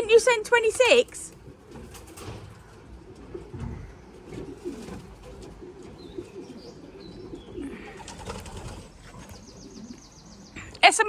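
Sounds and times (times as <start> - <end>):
pigeons cooing: 0.0 - 10.8.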